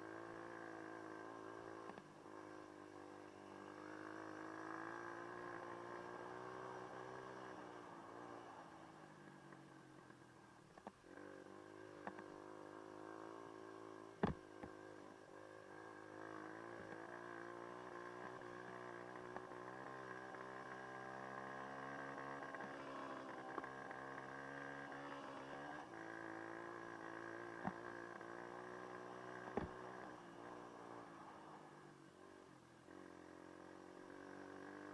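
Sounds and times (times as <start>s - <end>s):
dirt bike engine running: 15.8s - 31.5s.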